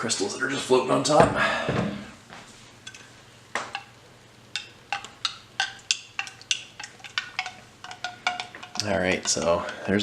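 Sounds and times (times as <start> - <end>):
spoon clinking against cup: 4.6 - 9.8.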